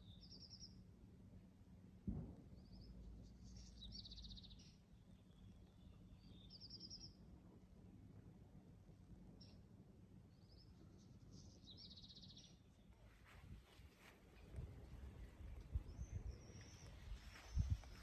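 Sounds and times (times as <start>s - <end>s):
small bird chirps and trills: 0.0s - 0.8s, 2.6s - 7.2s, 10.3s - 13.4s, 15.2s - 18.0s.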